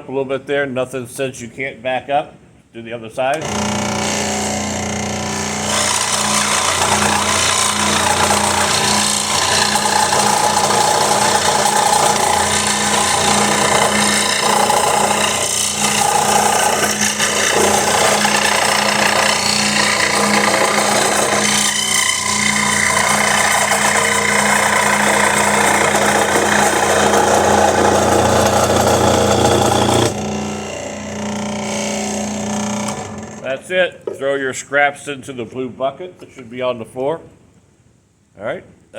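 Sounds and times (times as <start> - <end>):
saw blade rasping through wood: 3.4 - 33.5
saw motor humming: 3.4 - 33.5.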